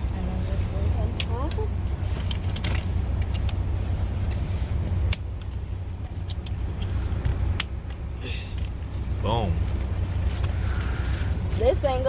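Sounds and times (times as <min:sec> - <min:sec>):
steady low rumble: 0:00.0 - 0:12.0
plastic clicks and knocks of car seat: 0:05.0 - 0:08.8.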